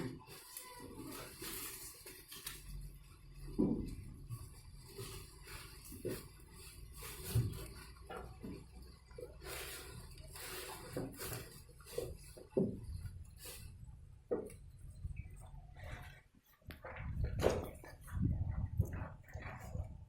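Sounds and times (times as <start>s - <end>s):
grass stalks rustling and crunching: 0.0s - 13.8s.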